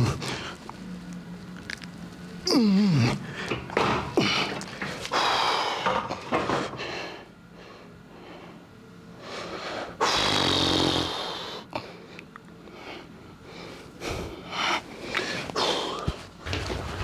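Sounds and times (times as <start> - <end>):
man breathing hard: 2.6 - 10.3, 11.0 - 16.4.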